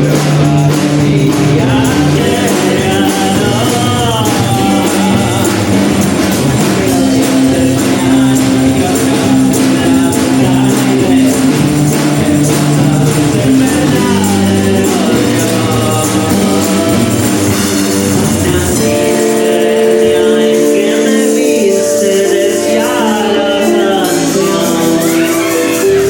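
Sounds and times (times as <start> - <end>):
gliding sung or played line: 0.0 - 26.0
live band music: 0.0 - 26.0
percussion hits: 0.0 - 26.0.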